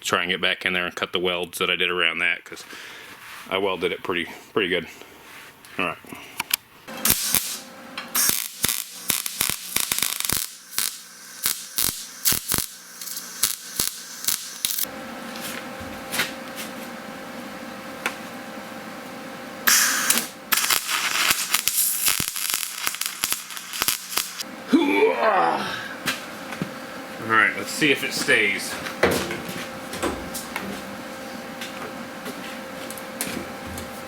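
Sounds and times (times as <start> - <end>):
electric welder crackling: 6.9 - 14.9, 19.6 - 24.5.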